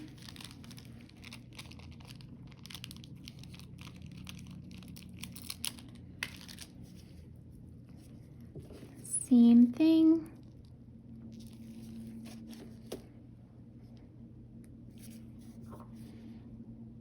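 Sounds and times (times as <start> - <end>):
cellophane crinkling and clicking: 0.0 - 6.9.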